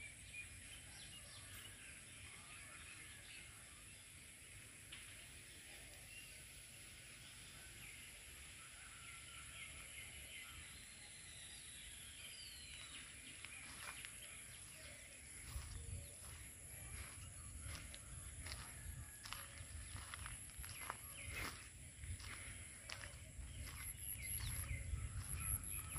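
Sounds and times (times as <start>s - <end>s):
small birds chirping: 9.4s - 25.9s.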